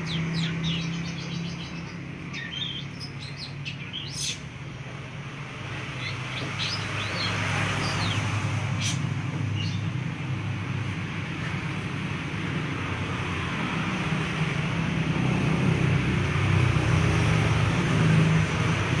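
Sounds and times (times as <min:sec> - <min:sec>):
high bird calls: 0:00.0 - 0:04.6, 0:05.9 - 0:09.9
traffic rumble and hiss: 0:00.0 - 0:19.0.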